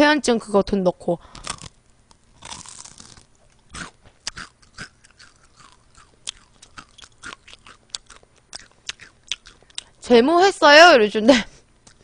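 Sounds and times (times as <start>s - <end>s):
crunchy chewing of fried chicken: 1.4s - 10.0s, 11.7s - 12.0s.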